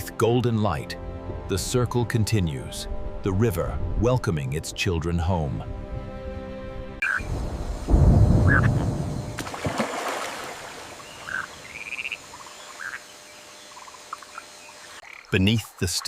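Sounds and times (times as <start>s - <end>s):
frogs calling: 7.0s - 16.0s.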